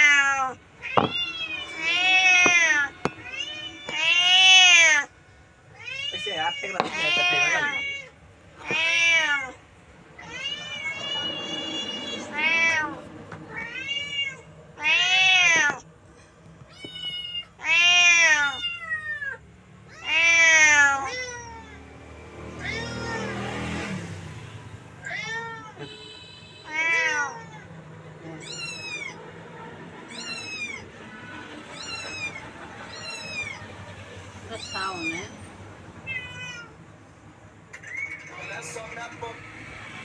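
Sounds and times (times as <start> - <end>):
cat meowing: 0.0 - 5.1, 5.7 - 9.6, 10.2 - 21.9, 22.5 - 23.7, 25.0 - 26.0, 26.6 - 29.3, 30.0 - 33.7, 34.5 - 35.4, 36.0 - 36.8.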